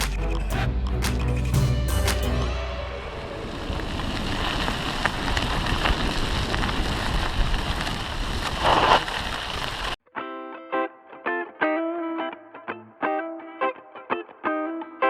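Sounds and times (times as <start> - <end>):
wind buffeting microphone: 3.0 - 10.0.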